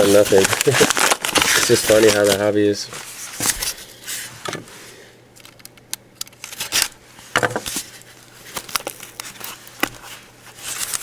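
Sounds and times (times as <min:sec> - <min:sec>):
packaging crinkling and scraping: 0:00.0 - 0:04.5, 0:06.3 - 0:11.0.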